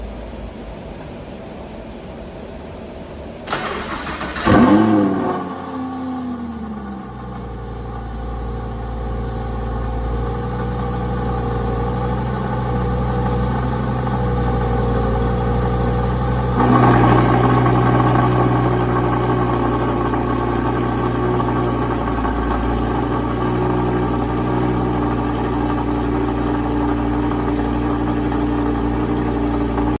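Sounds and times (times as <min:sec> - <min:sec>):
starter motor cranking: 0:03.5 - 0:05.0
car engine revving and idling: 0:03.5 - 0:30.0.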